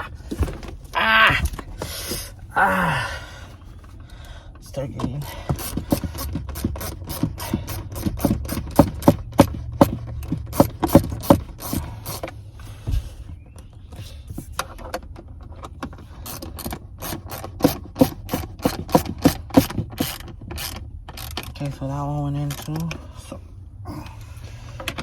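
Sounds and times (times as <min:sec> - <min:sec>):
hand ratchet clicking: 0:05.5 - 0:12.3, 0:16.2 - 0:21.5.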